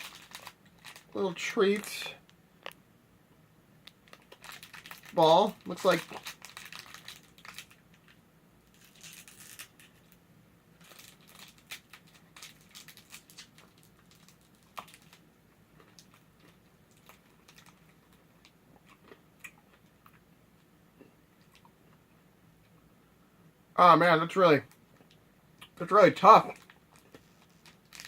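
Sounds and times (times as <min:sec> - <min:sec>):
candy wrapper crinkling: 0:00.0 - 0:02.1, 0:03.9 - 0:10.2, 0:10.8 - 0:15.2, 0:15.8 - 0:18.5, 0:26.5 - 0:28.0.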